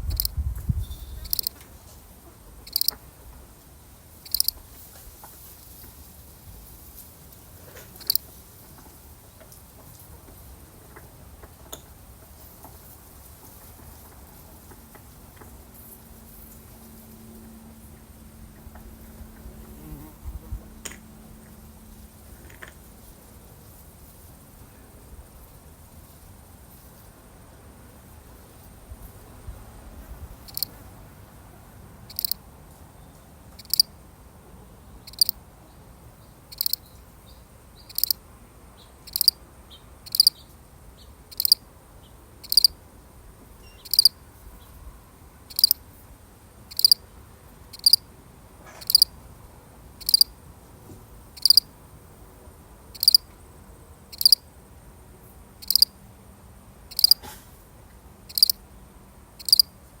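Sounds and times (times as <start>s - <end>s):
cricket chirping: 0.0s - 1.6s, 2.6s - 3.0s, 4.2s - 4.6s, 8.0s - 8.2s, 30.4s - 30.8s, 32.1s - 32.4s, 33.6s - 33.9s, 35.0s - 35.4s, 36.4s - 37.0s, 37.8s - 38.2s, 39.0s - 40.4s, 41.3s - 41.7s, 42.4s - 42.8s, 43.6s - 44.2s, 45.5s - 45.8s, 46.7s - 47.1s, 47.7s - 48.1s, 48.8s - 49.2s, 50.0s - 50.4s, 51.3s - 51.8s, 52.8s - 56.0s, 56.9s - 57.2s, 58.3s - 58.6s, 59.3s - 59.8s.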